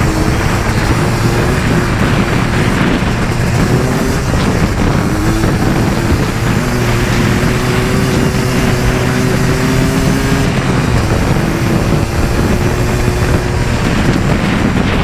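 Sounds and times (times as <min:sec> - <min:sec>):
atv engine running: 0:00.0 - 0:15.0
wind noise: 0:00.0 - 0:15.0.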